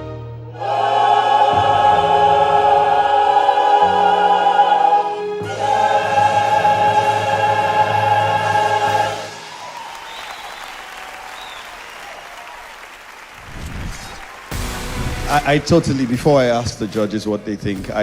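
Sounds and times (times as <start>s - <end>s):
choir singing held chords: 0.4s - 9.8s.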